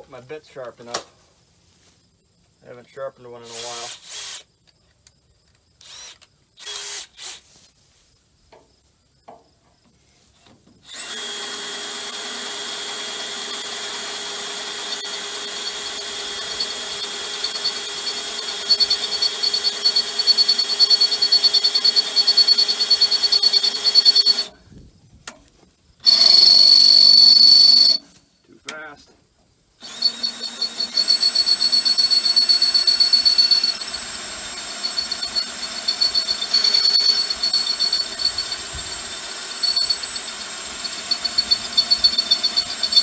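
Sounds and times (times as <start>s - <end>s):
electric drill boring into steel: 3.5s - 4.4s, 5.8s - 7.4s, 10.9s - 24.5s, 26.0s - 28.0s, 29.8s - 43.0s.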